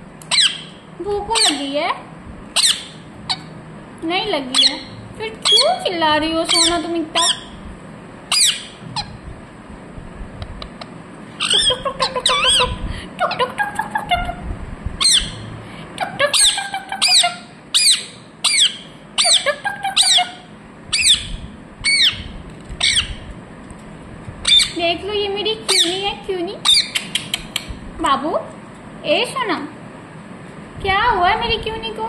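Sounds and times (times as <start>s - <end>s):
parrot squawking: 0.3s - 1.7s, 2.5s - 3.5s, 4.4s - 7.6s, 8.3s - 9.2s, 10.6s - 14.4s, 15.0s - 23.3s, 24.4s - 24.8s, 25.7s - 27.5s.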